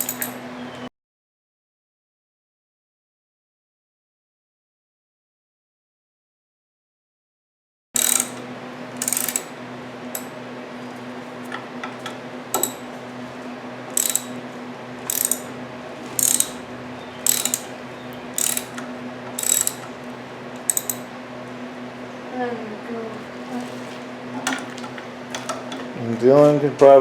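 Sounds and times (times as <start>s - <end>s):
socket ratchet clicking: 0.0s - 0.4s, 8.0s - 9.5s, 11.8s - 12.9s, 13.9s - 14.4s, 15.1s - 15.5s, 16.2s - 16.6s, 17.2s - 21.1s
steady low hum: 8.0s - 27.0s.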